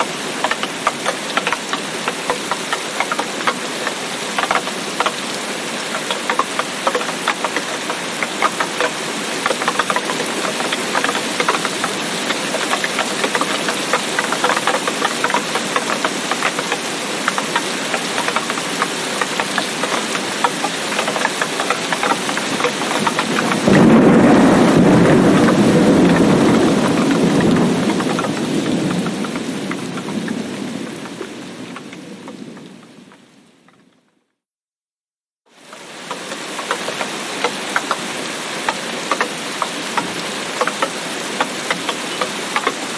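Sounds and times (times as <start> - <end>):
heavy rain pattering: 0.0 - 34.0, 35.5 - 42.9
thunder rumble: 22.5 - 33.3.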